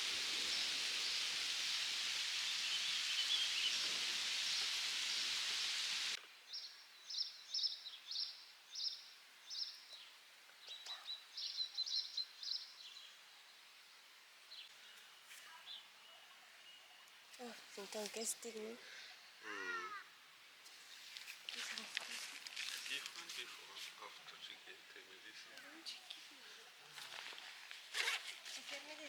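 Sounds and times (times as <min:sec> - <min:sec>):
songbird chirping: 0:00.0 - 0:29.0.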